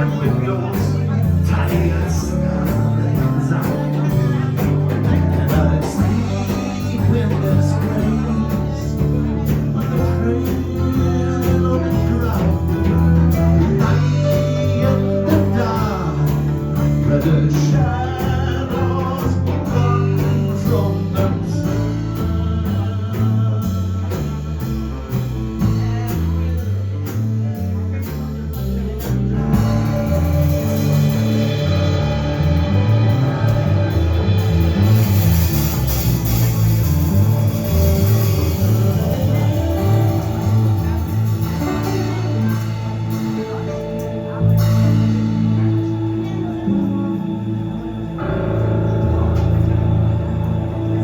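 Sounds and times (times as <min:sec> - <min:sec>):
bass line: 0:00.0 - 0:51.0
guitar: 0:00.0 - 0:51.0
live blues band: 0:00.0 - 0:51.0.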